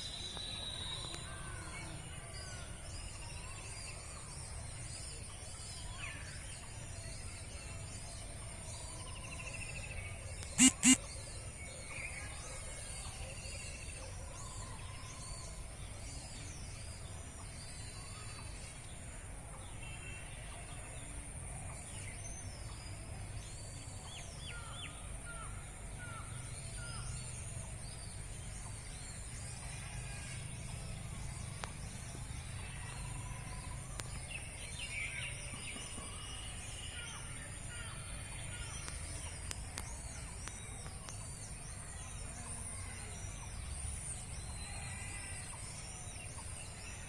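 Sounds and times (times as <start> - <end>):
birds chirping and calling: 10.4 - 11.0.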